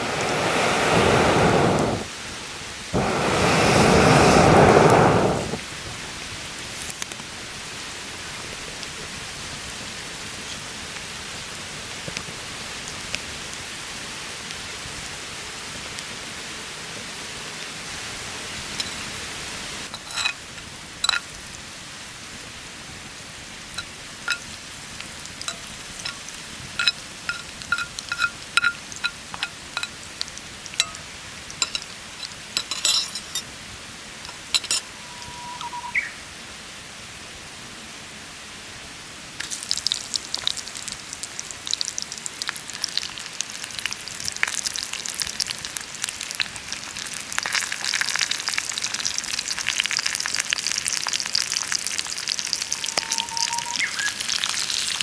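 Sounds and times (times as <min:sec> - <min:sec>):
food sizzling in a hot pan: 0:00.0 - 0:36.2, 0:39.2 - 0:55.0
cooking gear clicking and tapping: 0:19.9 - 0:21.3, 0:23.8 - 0:33.5, 0:34.2 - 0:34.9.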